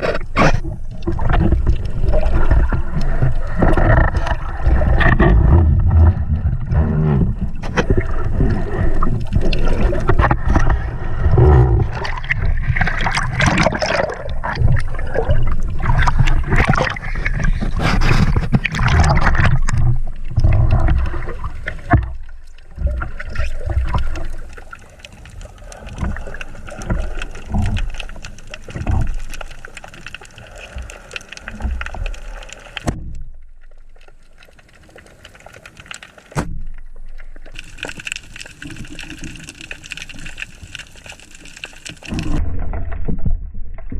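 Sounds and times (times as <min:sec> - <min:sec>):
muffled underwater rushing water: 0:00.0 - 0:43.9.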